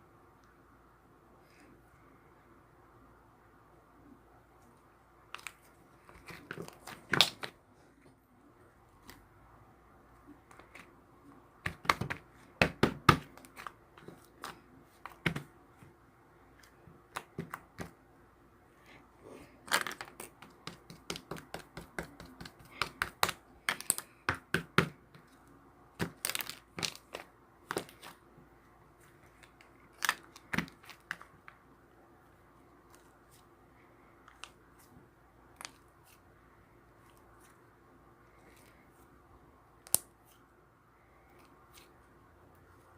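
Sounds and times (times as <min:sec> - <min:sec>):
hands crinkling thin material: 0:26.0 - 0:28.3, 0:29.0 - 0:31.6.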